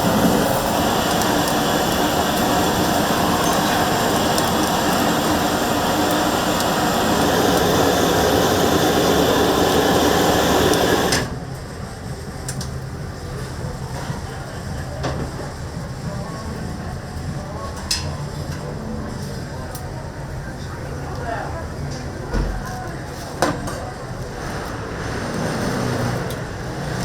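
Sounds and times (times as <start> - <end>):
loud rushing noise: 0.0 - 11.3.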